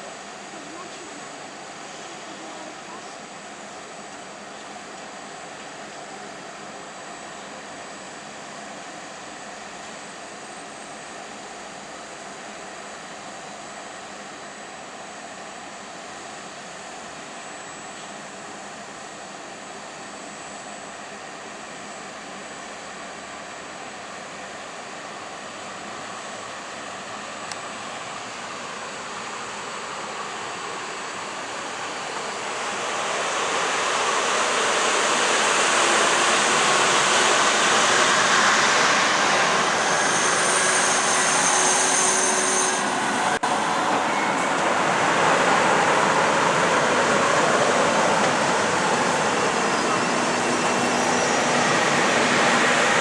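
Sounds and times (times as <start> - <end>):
train rail noise: 0.0 - 53.0
high thin wheel squeal: 37.6 - 44.6, 48.8 - 53.0.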